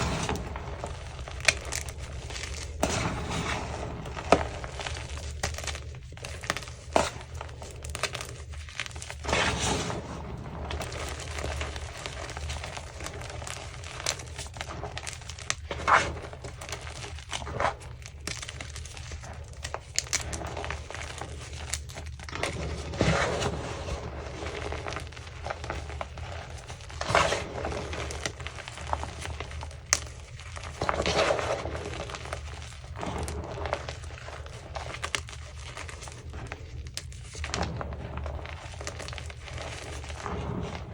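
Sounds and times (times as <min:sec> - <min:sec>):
steady low hum: 0:00.0 - 0:15.2
chalk crunching and crackling: 0:00.0 - 0:40.9.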